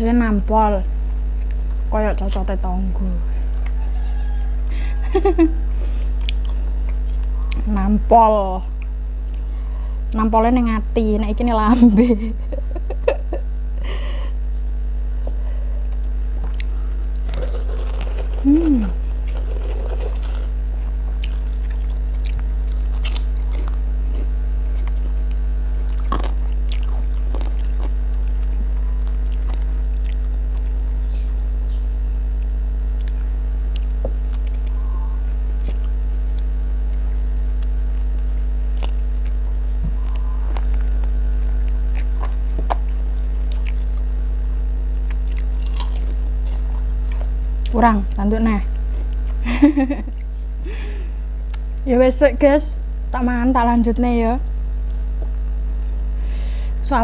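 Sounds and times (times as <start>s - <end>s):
low electrical hum: 0.0s - 57.0s
person chewing food: 6.0s - 7.7s, 15.2s - 31.2s, 32.3s - 34.8s, 35.5s - 47.7s, 48.7s - 49.4s
short falling vocal sound: 18.4s - 19.0s.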